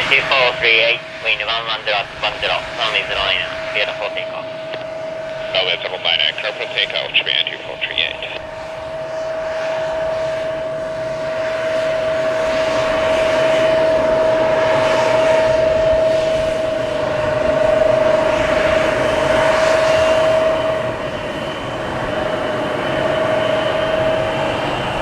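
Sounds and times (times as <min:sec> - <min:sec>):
jet engines whining: 0:00.0 - 0:25.0.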